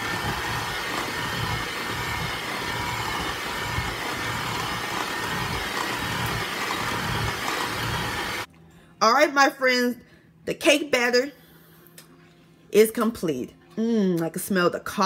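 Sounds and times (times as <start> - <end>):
electric hand mixer running: 0.0 - 8.5.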